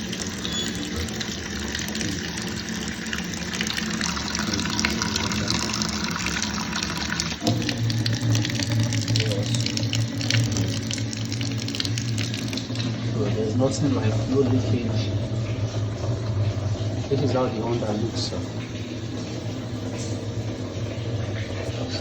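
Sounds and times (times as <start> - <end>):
tap water running into sink: 0.0 - 22.0
low hum: 7.4 - 22.0.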